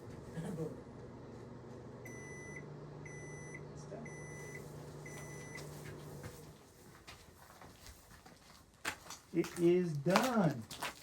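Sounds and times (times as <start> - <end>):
microwave oven humming: 0.0 - 6.6
microwave beeping: 1.8 - 6.2.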